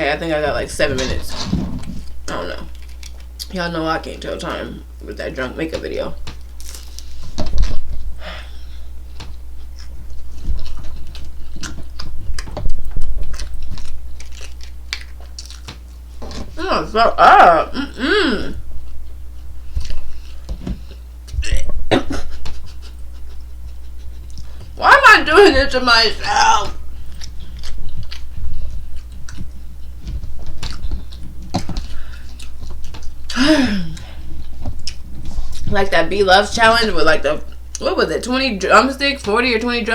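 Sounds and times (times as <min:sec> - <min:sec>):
low steady hum: 0:00.0 - 0:39.9
person chewing food: 0:01.8 - 0:03.5, 0:06.4 - 0:16.6, 0:17.9 - 0:24.8, 0:26.8 - 0:35.7
chewing with wet mouth clicks: 0:09.6 - 0:15.9, 0:27.1 - 0:33.3, 0:34.6 - 0:35.6.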